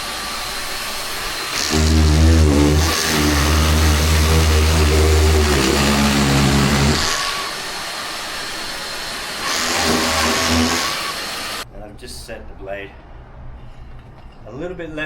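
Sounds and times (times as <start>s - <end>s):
drywall cutter humming: 0.0s - 11.6s
dust extractor hiss: 0.0s - 11.6s.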